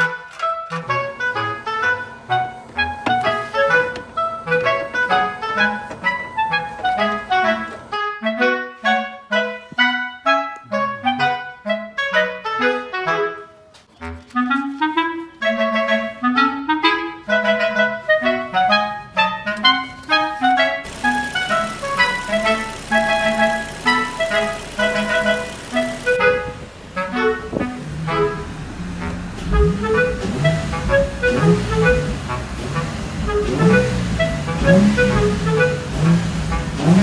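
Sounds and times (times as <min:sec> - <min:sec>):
woodwind melody: 0:00.0 - 0:37.0
bass line: 0:20.9 - 0:37.0.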